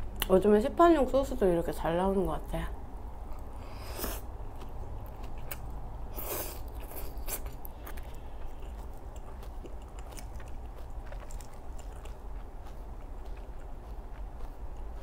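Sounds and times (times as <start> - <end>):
person chewing salad: 3.2 - 15.0.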